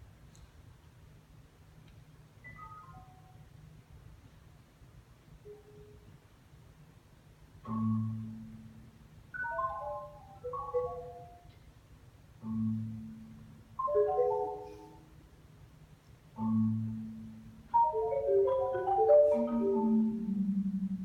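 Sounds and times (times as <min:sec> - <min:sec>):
solo marimba playing: 0:09.4 - 0:11.4, 0:12.4 - 0:15.1, 0:16.4 - 0:21.0.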